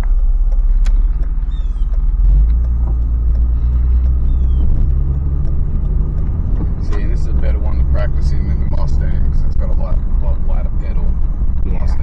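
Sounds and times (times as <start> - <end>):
car engine running: 0.0 - 12.0
low road rumble: 0.0 - 12.0.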